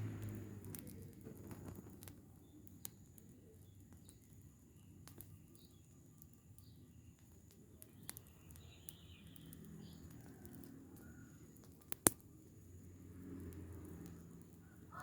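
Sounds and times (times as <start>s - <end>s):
fire popping: 0.0s - 15.0s
rubbish fire burning: 0.0s - 15.0s
faint bird chirps: 2.2s - 11.9s.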